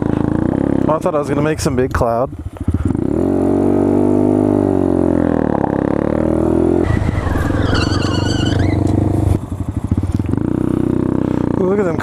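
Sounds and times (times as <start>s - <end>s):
motorcycle engine revving: 2.5s - 12.0s.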